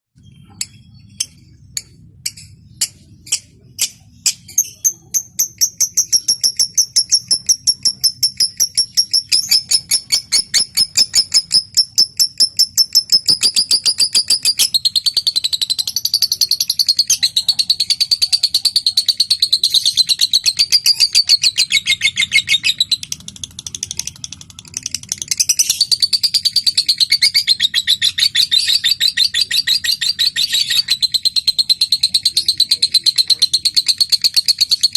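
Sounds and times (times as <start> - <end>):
bird ticking call: 0.2 - 34.9.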